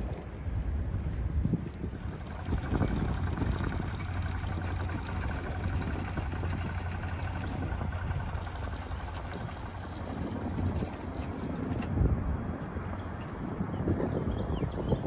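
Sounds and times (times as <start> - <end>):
wind: 0.0 - 15.0
water noise: 1.8 - 13.4
small boat motor humming: 1.9 - 13.3.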